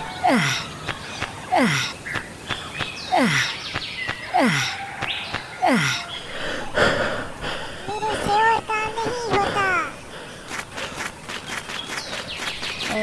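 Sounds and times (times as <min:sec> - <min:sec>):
man sighing heavily: 0:00.2 - 0:00.8, 0:01.5 - 0:02.0, 0:03.1 - 0:03.6, 0:04.3 - 0:04.9, 0:05.6 - 0:08.0.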